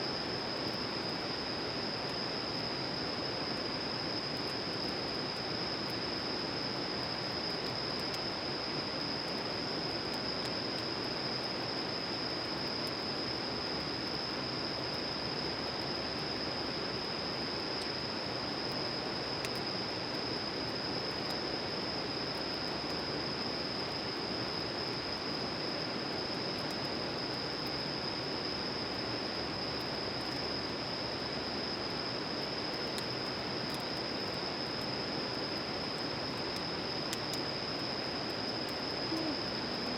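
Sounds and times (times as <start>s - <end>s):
high-pitched insect drone: 35.9s - 39.9s.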